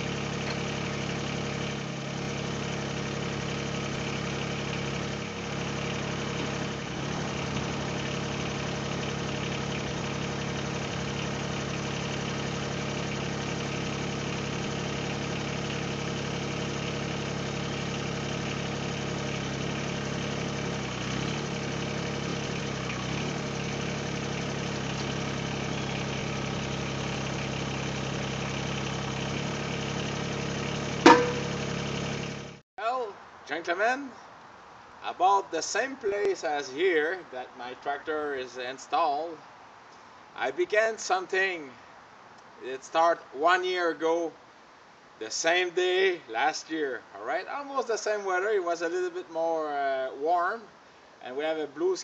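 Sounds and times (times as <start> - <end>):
tractor diesel engine idling: 0.0 - 32.6.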